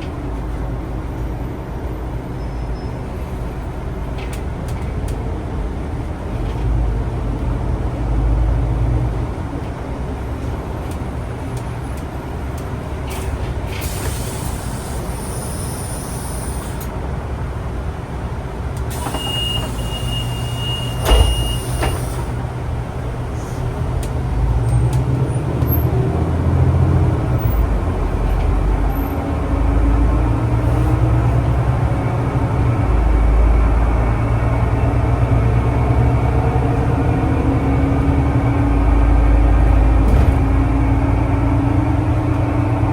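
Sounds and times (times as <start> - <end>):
bus engine rumbling: 0.0 - 42.9
air hissing: 13.8 - 16.9, 18.9 - 22.4
thump: 21.0 - 22.3, 40.0 - 40.6.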